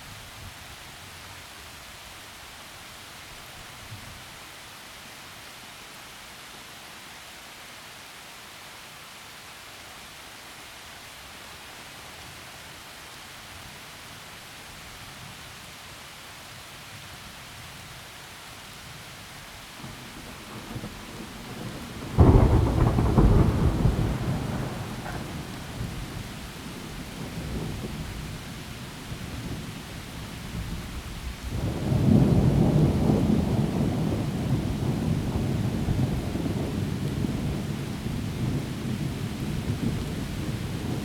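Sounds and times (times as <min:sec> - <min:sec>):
steady rain: 0:00.0 - 0:41.0
thunderclap: 0:19.8 - 0:28.4, 0:31.4 - 0:41.0
rolling thunder rumble: 0:19.8 - 0:41.0.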